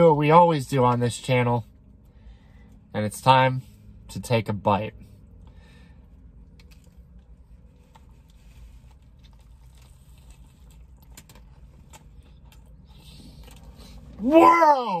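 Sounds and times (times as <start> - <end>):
low steady hum: 0.0 - 15.0
chewing and crunching food: 5.2 - 14.3.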